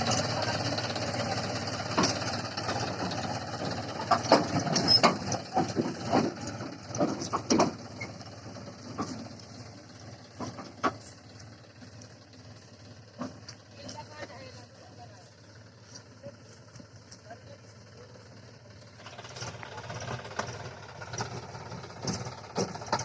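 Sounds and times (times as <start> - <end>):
tractor diesel engine running: 0.0 - 23.0
sharp knocks and clicks: 1.9 - 8.2.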